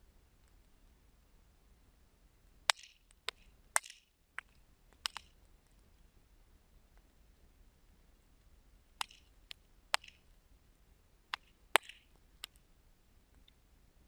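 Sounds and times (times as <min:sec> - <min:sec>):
faint fire burning: 0:00.0 - 0:14.0
wood fire crackling and popping: 0:02.7 - 0:05.8, 0:09.0 - 0:10.4, 0:11.3 - 0:12.6.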